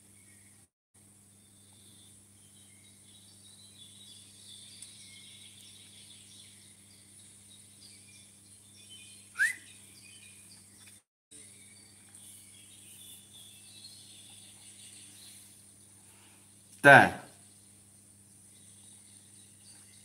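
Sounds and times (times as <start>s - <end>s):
birds chirping faintly: 0.0s - 20.0s
short rising whistled call: 9.3s - 9.8s.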